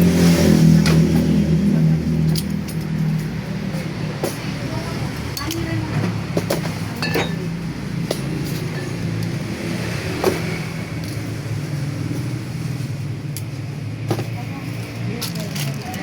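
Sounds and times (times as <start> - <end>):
light clicks and clinks: 14.8 - 16.0.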